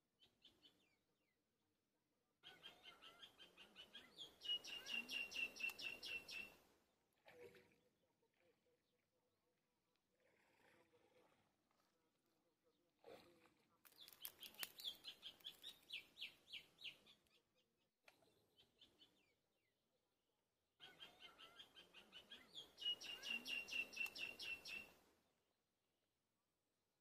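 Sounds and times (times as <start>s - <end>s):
bird chirping: 2.4s - 6.6s, 13.9s - 17.6s, 20.8s - 25.0s.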